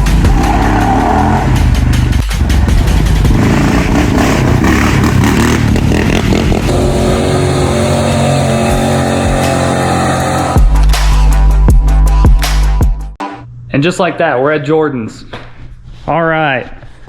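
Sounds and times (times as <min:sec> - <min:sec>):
car engine revving: 0:00.0 - 0:10.7.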